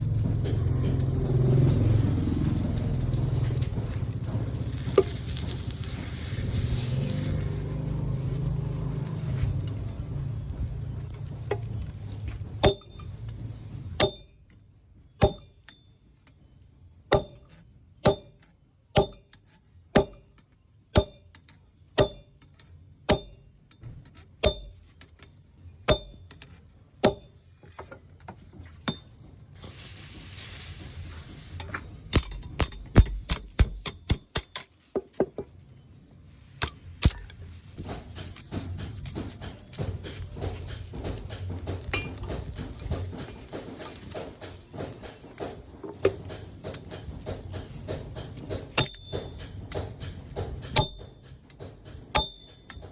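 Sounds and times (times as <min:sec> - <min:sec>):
hammer striking steel on anvil: 0:00.1 - 0:01.5, 0:12.2 - 0:16.0, 0:17.1 - 0:25.3, 0:25.9 - 0:28.1, 0:28.8 - 0:29.4, 0:30.8 - 0:34.8, 0:36.5 - 0:52.9.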